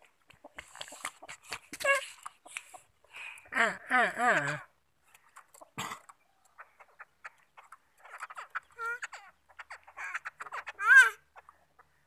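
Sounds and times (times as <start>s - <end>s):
bird croaking chatter: 4.3s - 12.0s.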